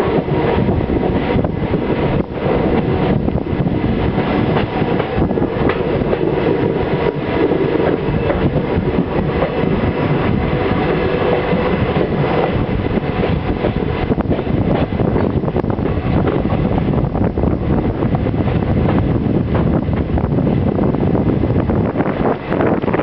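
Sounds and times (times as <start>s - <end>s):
train wheels rumbling on rails: 0.0s - 23.0s
faint clicks at rail joints: 4.5s - 6.3s.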